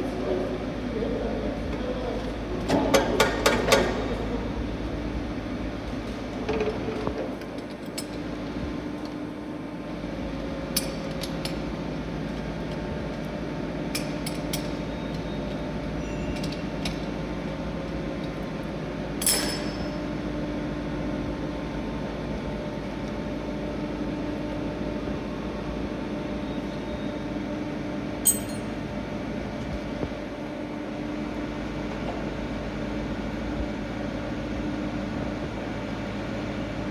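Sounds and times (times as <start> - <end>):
metallic clinks: 19.2 - 20.0, 28.2 - 28.7.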